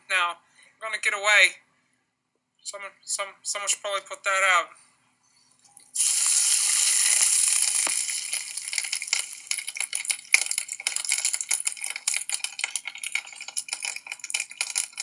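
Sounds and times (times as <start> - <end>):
crackling and fizzing clicks: 5.6 - 15.0.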